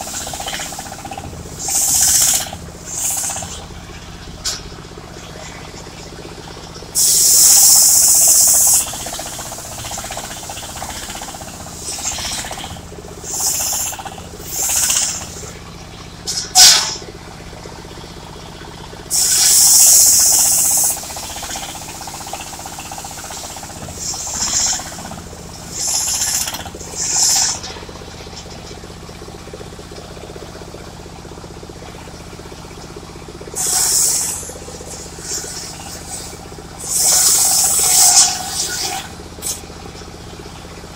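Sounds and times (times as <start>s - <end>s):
loud high hissing bursts: 0.0s - 3.6s, 7.0s - 9.7s, 13.2s - 15.5s, 19.1s - 21.4s, 22.1s - 25.0s, 25.6s - 27.6s, 33.6s - 39.6s
sawmill engine running: 0.0s - 40.9s.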